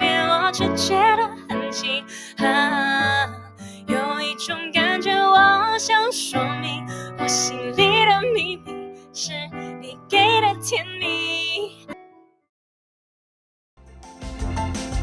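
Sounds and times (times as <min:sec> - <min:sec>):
woman singing a slow ballad: 0:00.0 - 0:11.8
piano chords: 0:00.0 - 0:12.4, 0:13.8 - 0:15.0.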